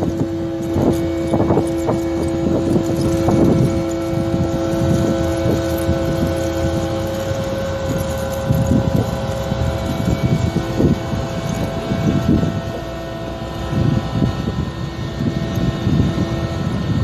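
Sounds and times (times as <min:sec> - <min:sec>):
machine engine droning hum: 0:00.0 - 0:17.0
wind rumbling on microphone: 0:00.0 - 0:17.0.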